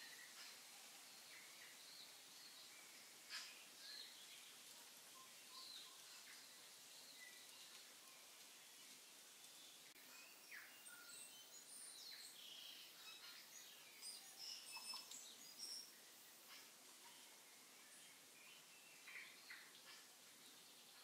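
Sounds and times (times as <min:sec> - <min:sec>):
background hiss: 0:00.0 - 0:21.0
faint bird chirps and calls: 0:00.0 - 0:21.0.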